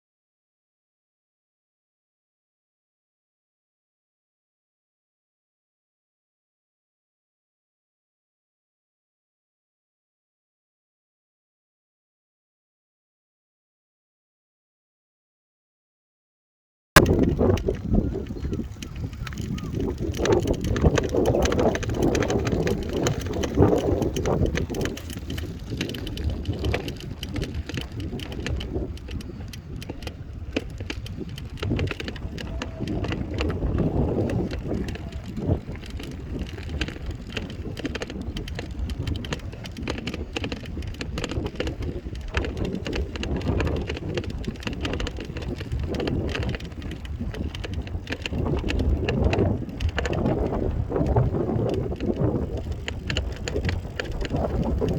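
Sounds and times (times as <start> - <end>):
bicycle rattles and clicks: 17.0 - 54.9
wind rumbling on microphone: 17.0 - 54.9.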